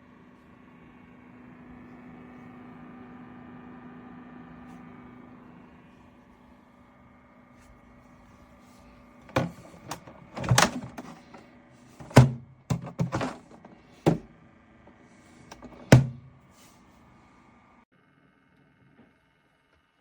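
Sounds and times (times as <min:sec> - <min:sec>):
mini fridge humming: 0:00.0 - 0:20.0
handling thuds and clicks: 0:09.2 - 0:16.4.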